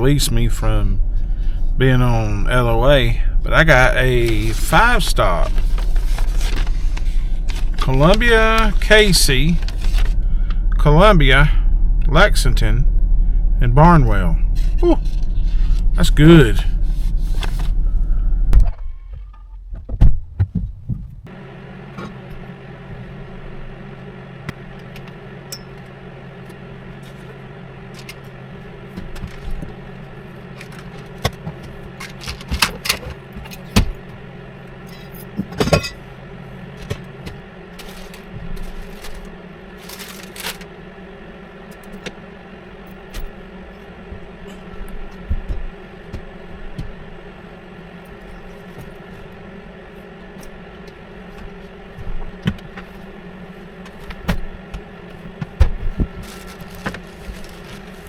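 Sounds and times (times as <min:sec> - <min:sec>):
truck engine idling: 0:00.0 - 0:19.8, 0:21.2 - 0:58.0
loud low rumble: 0:00.0 - 0:21.5
clicks and clatter of handling: 0:30.5 - 0:33.7.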